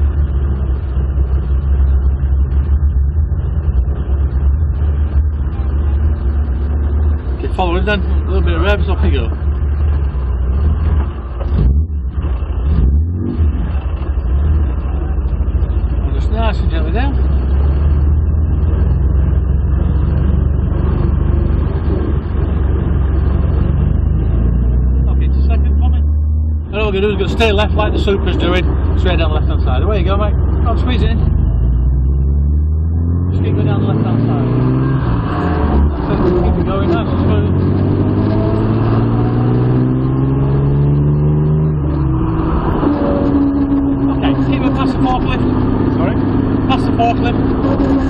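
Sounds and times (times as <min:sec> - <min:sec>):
car engine rumbling at low revs: 0:00.0 - 0:48.0
road and wind noise: 0:00.0 - 0:48.0.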